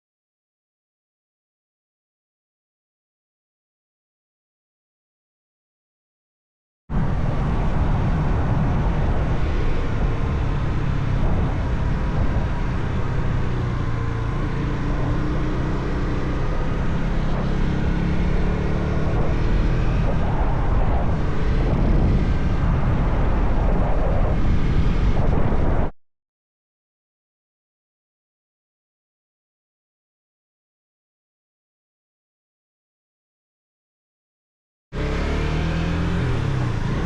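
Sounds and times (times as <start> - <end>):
wind and road rush: 6.9 - 26.0, 35.0 - 37.0
motorcycle engine: 7.3 - 25.3, 35.0 - 37.0.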